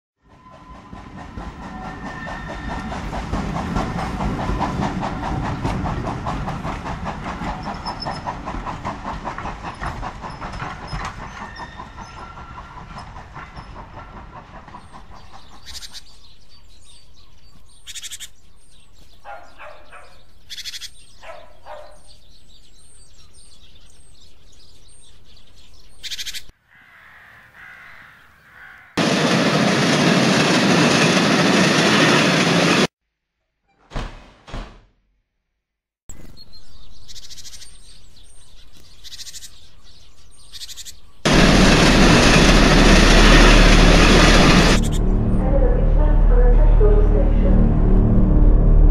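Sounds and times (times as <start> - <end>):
train wheels clickety-clack: 0.2 - 16.0, 41.3 - 45.0.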